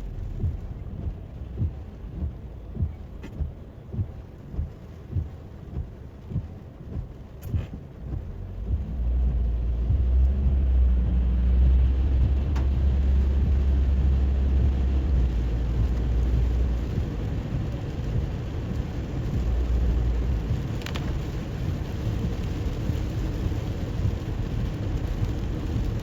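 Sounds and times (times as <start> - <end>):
deep low rumble: 0.0 - 26.0
rain hissing on a car: 0.0 - 26.0.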